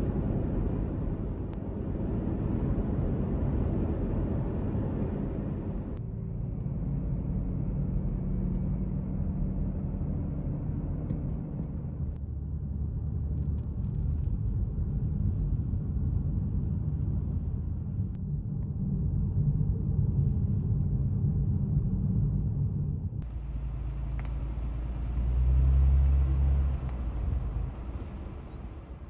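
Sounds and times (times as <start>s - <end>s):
car engine and road noise: 23.2s - 29.0s.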